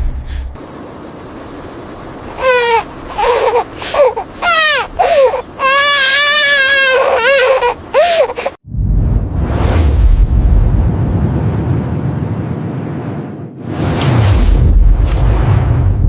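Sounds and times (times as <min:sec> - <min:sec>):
young child crying: 0:02.4 - 0:08.6.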